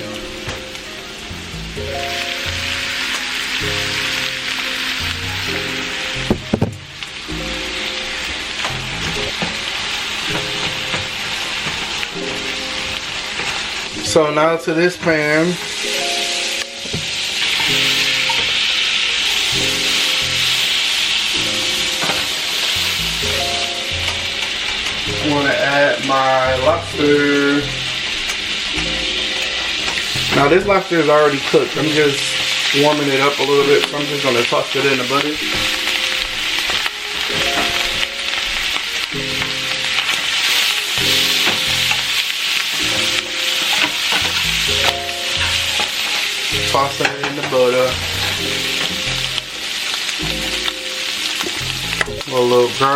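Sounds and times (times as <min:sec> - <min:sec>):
background music: 0:00.0 - 0:52.9
butter sizzling in a skillet: 0:00.0 - 0:52.9
food stirred in a pan: 0:15.0 - 0:23.2, 0:31.4 - 0:52.9.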